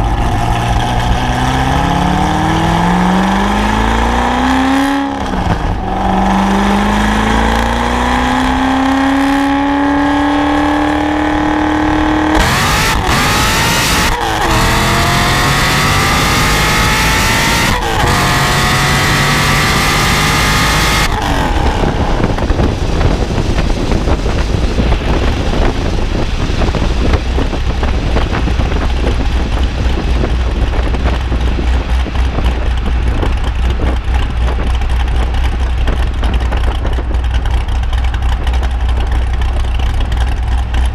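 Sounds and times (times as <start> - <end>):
car engine revving through gears: 0.0 - 34.7
rough steady engine note: 0.0 - 40.9.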